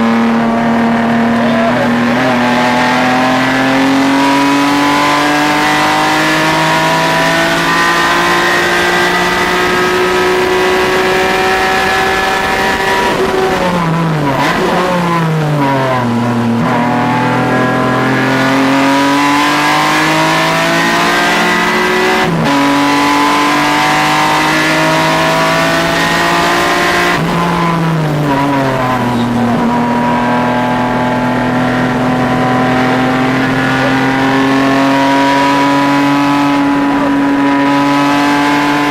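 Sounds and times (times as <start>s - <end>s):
car engine revving and downshifting: 0.0s - 38.9s.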